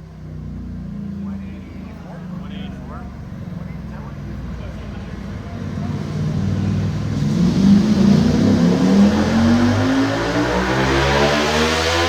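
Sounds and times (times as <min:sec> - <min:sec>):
motorcycle engine revving on dyno: 0:05.4 - 0:12.0.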